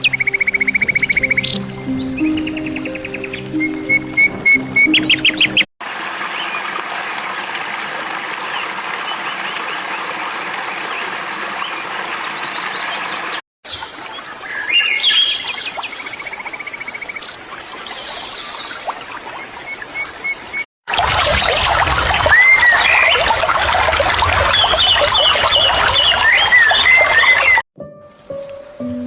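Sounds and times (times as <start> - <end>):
chorus of chirping birds: 0.0 - 5.7, 21.3 - 27.6.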